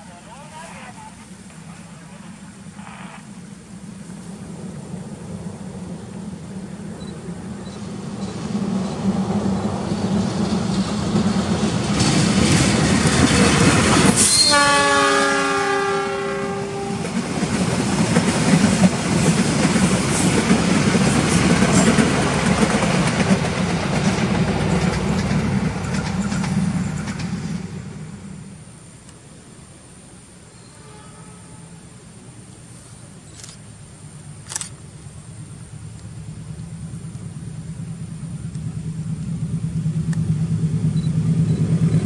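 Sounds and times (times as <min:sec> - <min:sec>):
train wheels rumbling on rails: 0:00.0 - 0:28.7, 0:34.5 - 0:42.0
train horn: 0:14.2 - 0:17.2, 0:30.7 - 0:31.8.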